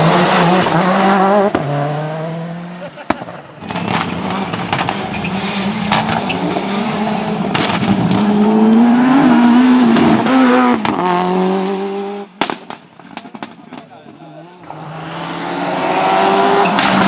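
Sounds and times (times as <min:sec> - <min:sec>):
rally car engine revving: 0:00.0 - 0:17.0
sharp cracks: 0:07.5 - 0:08.4, 0:12.4 - 0:14.0.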